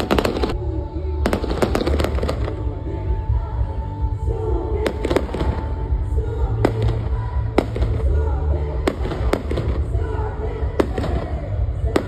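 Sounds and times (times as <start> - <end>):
fireworks bangs: 0.0 - 0.6, 1.2 - 2.7, 6.6 - 12.0
music playing: 0.0 - 12.0.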